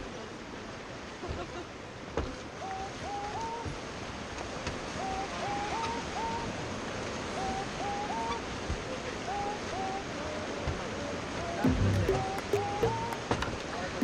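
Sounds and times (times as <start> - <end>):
melody of short rising notes: 11.6 - 13.6.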